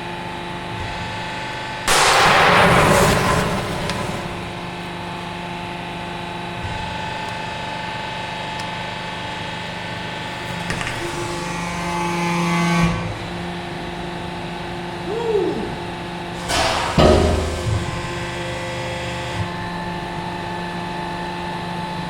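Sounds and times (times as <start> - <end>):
hydraulic power unit motor hum: 13.0 - 20.5.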